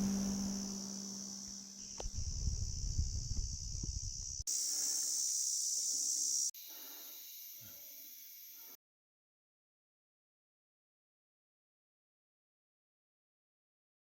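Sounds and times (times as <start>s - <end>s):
guitar music: 0.0s - 1.6s
low rumbling noise: 0.0s - 2.8s
high-pitched insect drone: 0.0s - 8.8s.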